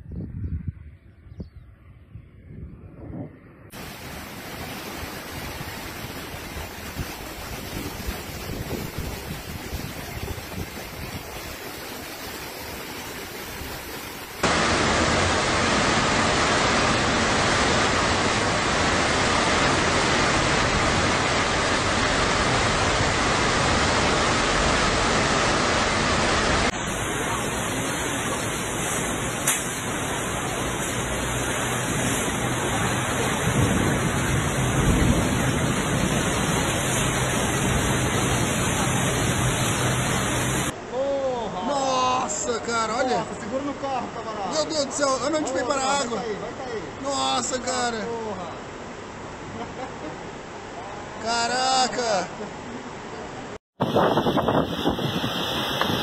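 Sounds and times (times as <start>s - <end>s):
heavy rain and wind: 2.2s - 56.0s.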